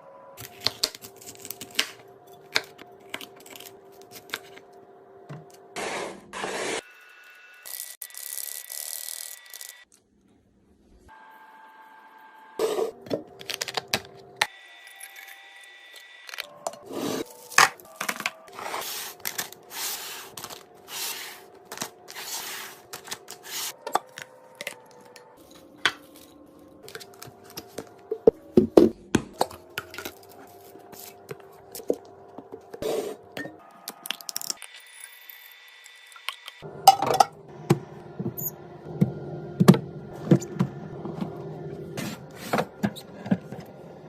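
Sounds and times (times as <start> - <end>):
packets rustling and tearing: 17.2 - 24.3
items and lids clicking and knocking: 17.5 - 18.5, 36.8 - 41.4.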